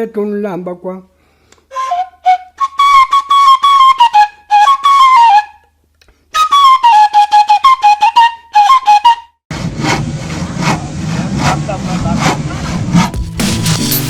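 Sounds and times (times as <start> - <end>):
flute-like melody: 1.7 - 9.4
light percussion: 13.1 - 14.0.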